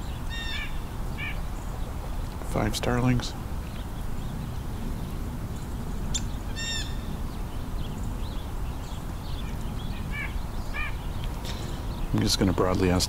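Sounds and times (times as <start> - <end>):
harsh blue jay call: 0.0 - 1.5, 6.1 - 7.1, 9.4 - 12.9
sparrows chirping: 0.0 - 13.0.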